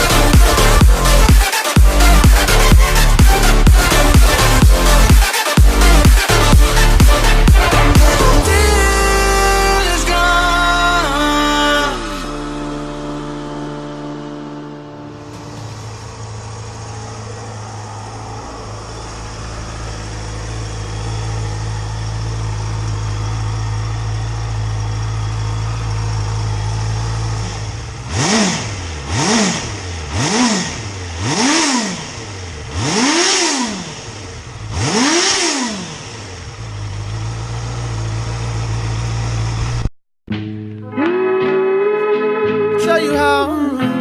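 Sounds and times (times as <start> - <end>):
motorcycle engine idling: 0.0 - 9.8, 15.2 - 39.9
motorcycle engine revving: 0.0 - 39.9.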